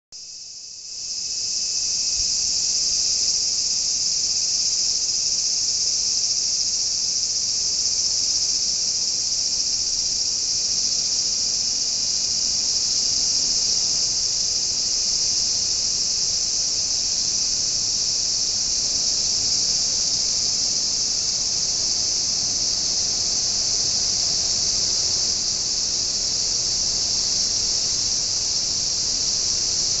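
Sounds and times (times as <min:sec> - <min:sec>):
cicadas buzzing: 0:00.2 - 0:30.0.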